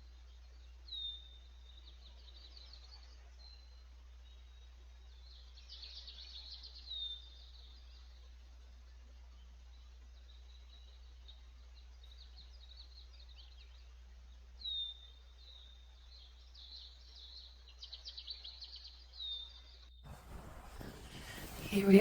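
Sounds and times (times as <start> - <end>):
faint steady hiss: 0.0 - 22.0
wind noise: 20.1 - 22.0.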